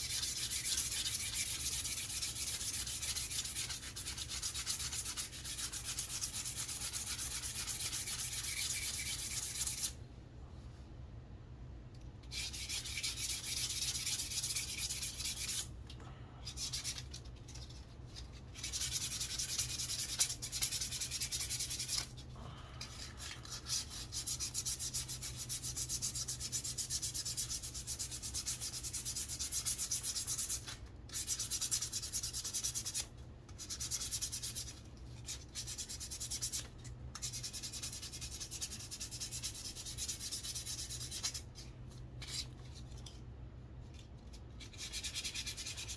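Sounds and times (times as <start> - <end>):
sandpaper rubbing on wood: 0.0 - 10.0, 37.2 - 41.4, 44.7 - 45.9.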